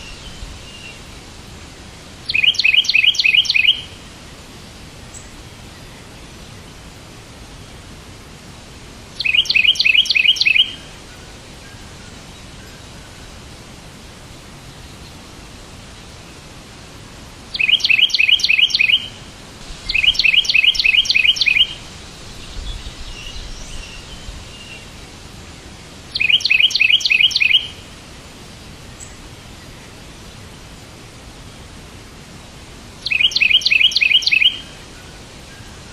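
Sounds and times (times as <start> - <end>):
steady hiss: 0.0 - 35.9
bird chirping: 2.3 - 4.0, 9.2 - 10.9, 17.5 - 19.2, 19.8 - 25.0, 26.1 - 27.8, 33.0 - 34.8.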